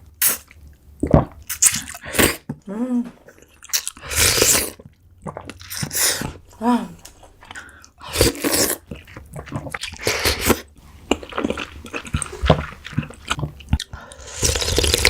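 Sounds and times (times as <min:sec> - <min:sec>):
person chewing food: 0:07.0 - 0:15.0.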